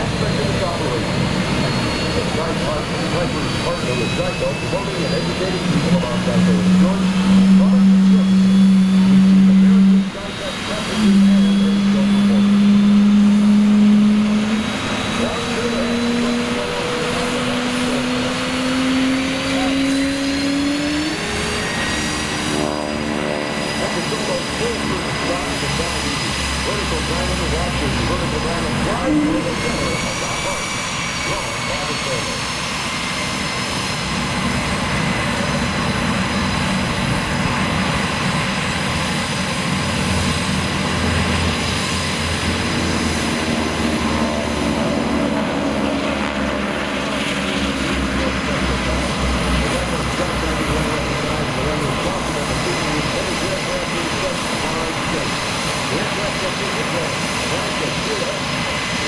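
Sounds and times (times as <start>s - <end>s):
aircraft engines droning overhead: 0.0s - 59.0s.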